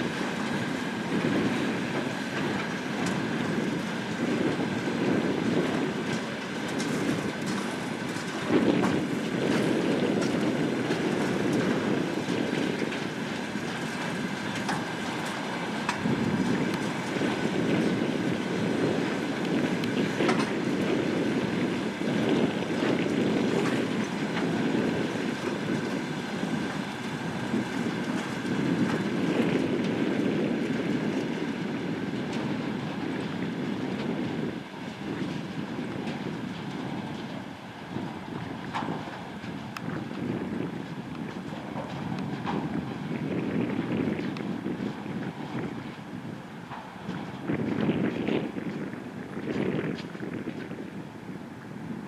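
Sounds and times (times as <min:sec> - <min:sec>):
train running noise: 0:00.0 - 0:52.0
wheels clicking over rail joints: 0:04.3 - 0:31.2.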